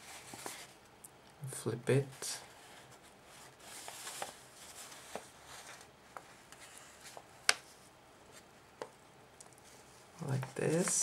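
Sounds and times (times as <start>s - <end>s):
paper rustling and creasing: 0.0s - 0.8s, 2.0s - 8.5s, 9.6s - 11.0s.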